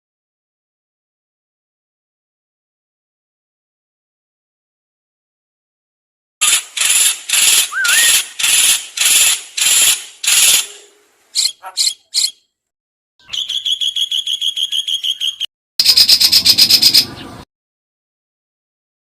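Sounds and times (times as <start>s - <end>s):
bird fast trill: 6.4s - 12.4s, 13.2s - 17.4s
songbird harsh rasping notes: 6.4s - 12.4s
bird short sharp notes: 7.6s - 8.3s.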